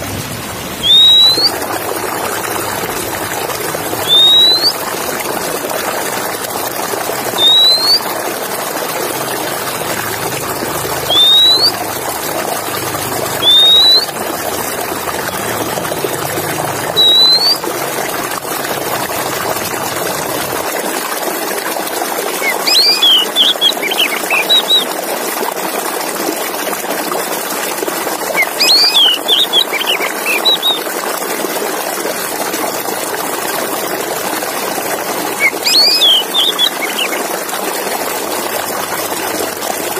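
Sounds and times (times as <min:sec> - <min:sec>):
bird whistling and chirping: 0:00.8 - 0:01.6, 0:04.0 - 0:04.8, 0:07.3 - 0:08.1, 0:11.0 - 0:11.8, 0:13.4 - 0:14.1, 0:16.9 - 0:17.6, 0:22.4 - 0:24.9, 0:28.3 - 0:30.8, 0:35.4 - 0:37.2.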